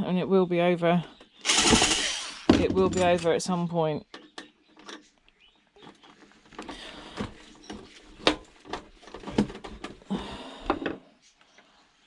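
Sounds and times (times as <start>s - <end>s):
tools clicking and rattling: 1.4s - 3.5s.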